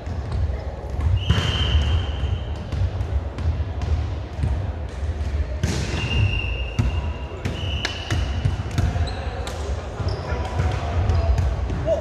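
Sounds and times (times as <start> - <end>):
volleyball being hit and bouncing: 0.1 - 9.8
referee's whistle: 1.2 - 2.4, 5.9 - 8.1.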